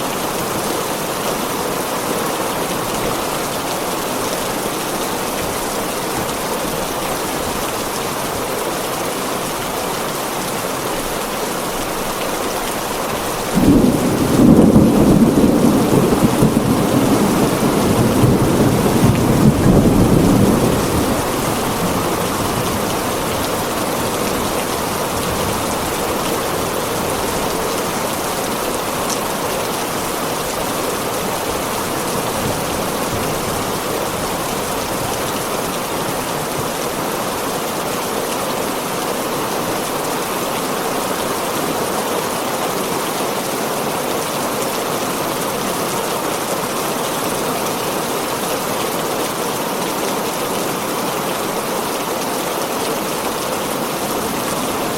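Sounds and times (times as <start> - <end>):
heavy rain on a tin roof: 0.0 - 54.9
low thunder rumble: 13.6 - 28.1.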